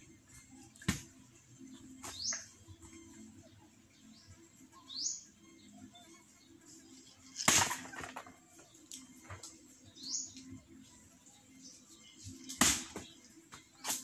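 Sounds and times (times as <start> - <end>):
bird chirping: 1.6 - 9.2, 9.8 - 13.3.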